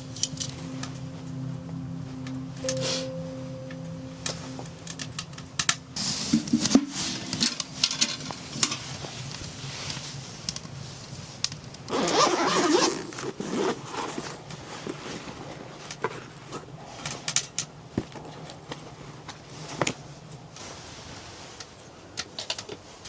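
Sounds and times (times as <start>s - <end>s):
low hum: 0.0s - 9.7s
rustle: 6.0s - 23.0s.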